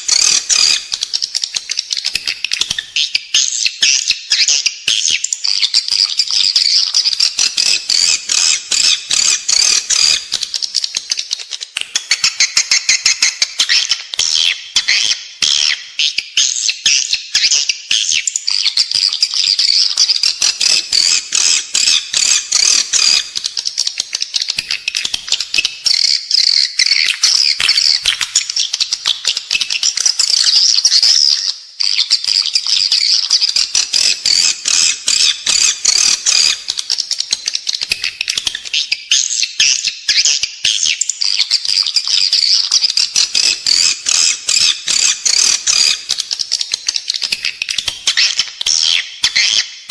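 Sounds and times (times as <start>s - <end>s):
swiftlet chirping chatter: 42.2s - 48.8s.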